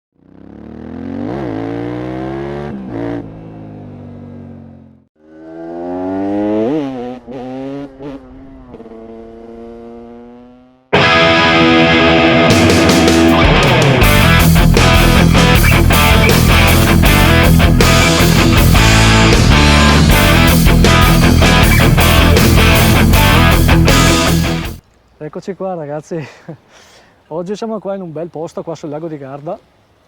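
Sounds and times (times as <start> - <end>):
motorcycle engine accelerating: 0.1 - 24.8
rock music with distorted guitar: 10.9 - 24.8.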